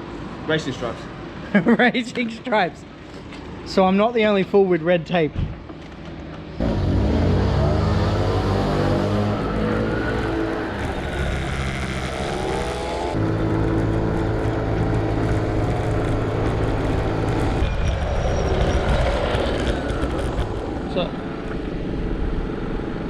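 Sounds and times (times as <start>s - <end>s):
scooter engine running: 6.6s - 21.7s.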